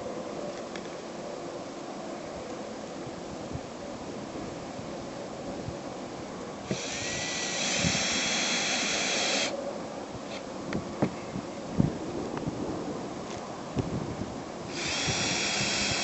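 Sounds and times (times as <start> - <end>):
cordless drill whining: 6.7 - 9.5, 14.7 - 16.0.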